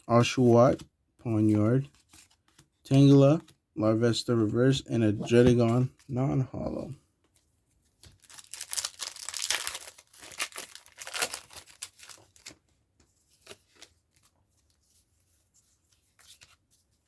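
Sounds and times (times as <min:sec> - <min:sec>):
foil wrapper tearing and crinkling: 0:08.2 - 0:12.6.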